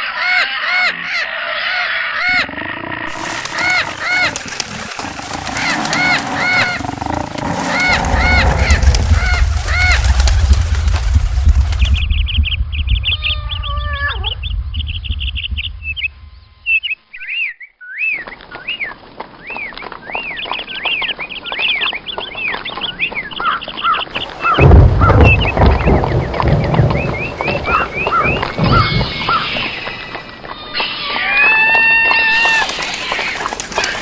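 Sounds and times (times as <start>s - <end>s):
birds chirping: 0.0s - 34.0s
steady low rumble: 4.4s - 16.7s, 24.2s - 30.4s.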